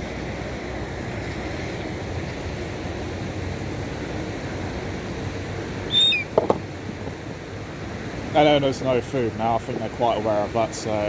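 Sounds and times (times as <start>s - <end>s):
wind: 0.0s - 11.0s
bird call falling in pitch: 5.9s - 6.3s.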